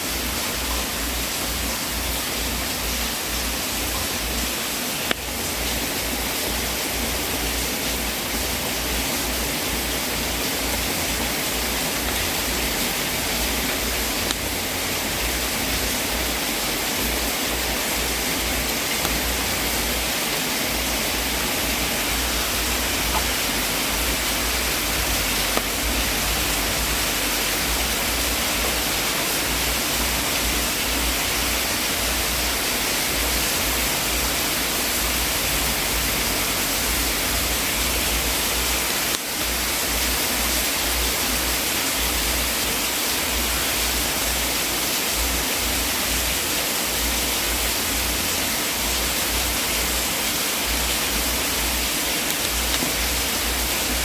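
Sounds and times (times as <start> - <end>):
fireplace fire hissing: 0.0 - 54.0.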